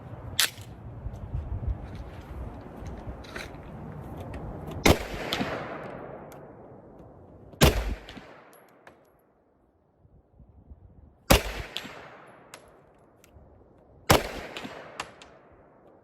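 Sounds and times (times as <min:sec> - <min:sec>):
pistol shots with echo: 0:04.8 - 0:06.7, 0:07.6 - 0:08.8, 0:11.3 - 0:12.9, 0:14.1 - 0:15.8.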